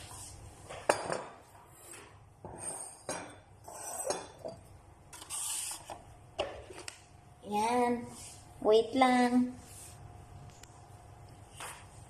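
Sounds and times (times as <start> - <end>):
dishes and utensils clinking: 0.7 - 4.6.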